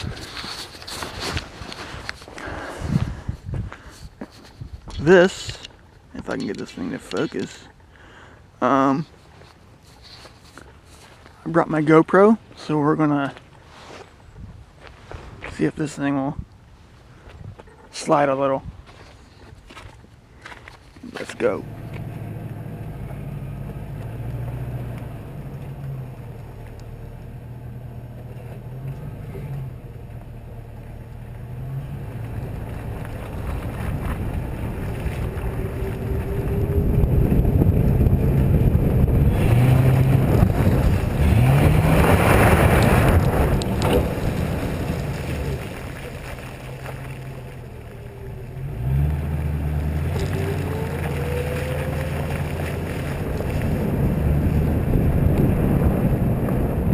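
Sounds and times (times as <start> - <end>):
tyre noise in snow: 0.0 - 4.8, 13.4 - 15.6, 28.2 - 56.9
wind rushing over microphone: 0.0 - 5.7, 32.6 - 46.1, 50.0 - 56.9
car engine revving: 21.5 - 56.9.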